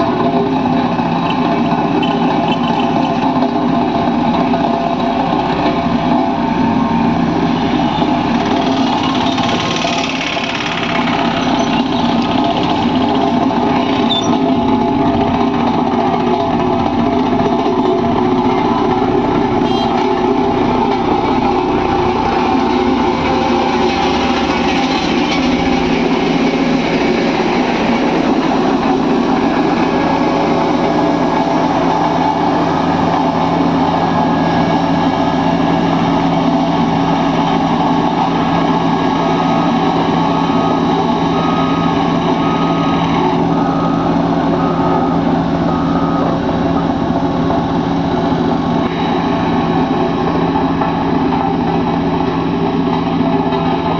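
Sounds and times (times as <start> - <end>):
diesel machinery engines droning: 0.0 - 53.9.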